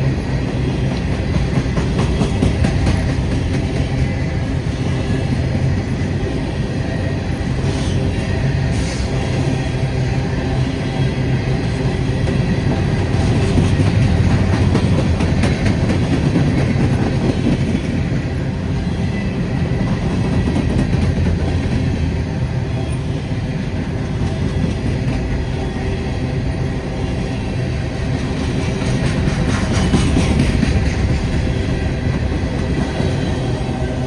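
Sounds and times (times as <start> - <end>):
freight train rolling past: 0.0 - 34.0.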